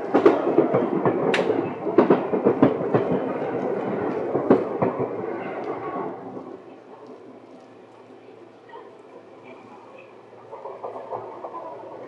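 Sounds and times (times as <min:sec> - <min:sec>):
train wheels clacking over joints: 0:00.0 - 0:07.1, 0:10.2 - 0:12.0
train rumble: 0:00.0 - 0:12.0.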